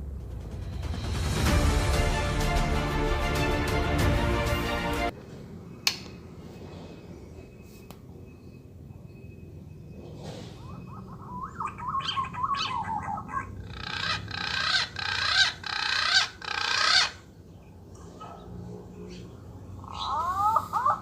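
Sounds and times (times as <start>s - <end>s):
recorded bird chirps from speaker: 5.7s - 14.2s
rapid chattering bird calls: 10.6s - 18.4s, 19.1s - 21.0s.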